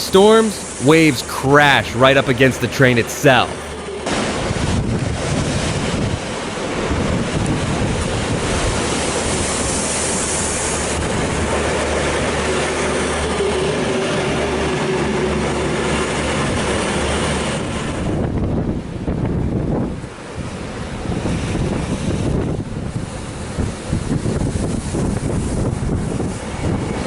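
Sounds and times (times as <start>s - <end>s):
storm waves crashing: 0.0s - 15.3s
wind rush on microphone: 4.1s - 12.5s, 17.4s - 27.0s.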